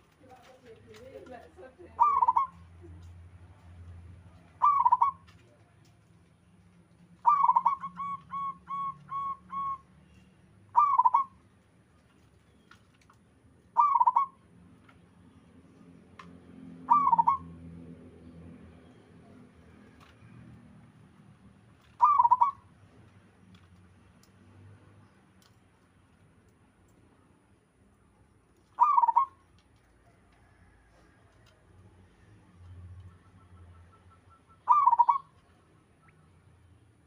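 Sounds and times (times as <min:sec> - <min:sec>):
dove cooing: 0:02.0 - 0:03.0, 0:04.6 - 0:05.2, 0:07.2 - 0:09.8, 0:10.8 - 0:11.4, 0:13.8 - 0:14.4, 0:16.8 - 0:17.5, 0:21.9 - 0:22.6, 0:28.8 - 0:29.4, 0:33.3 - 0:35.3.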